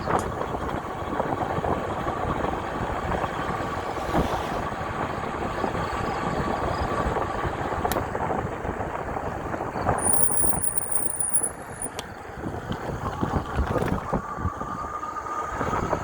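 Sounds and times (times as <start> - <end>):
tyres on wet road: 0.0 - 16.0
wind noise: 0.0 - 16.0
faint high whine: 9.8 - 12.1.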